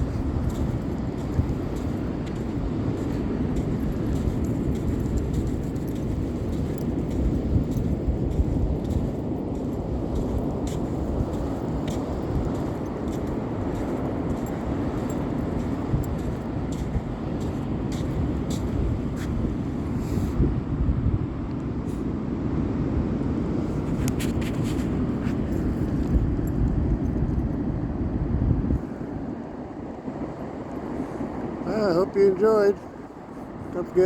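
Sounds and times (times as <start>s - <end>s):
ocean surf: 0.0s - 20.4s, 28.8s - 34.0s
wind rumble on microphone: 0.0s - 34.0s.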